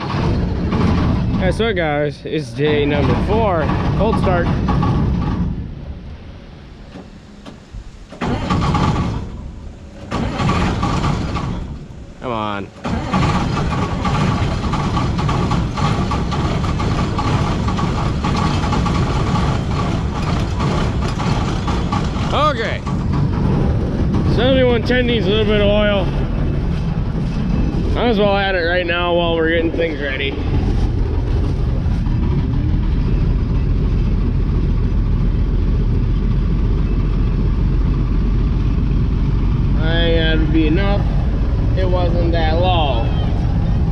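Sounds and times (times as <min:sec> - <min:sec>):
diesel engine idling: 0:00.0 - 0:43.9
faint steady whine: 0:05.4 - 0:12.8.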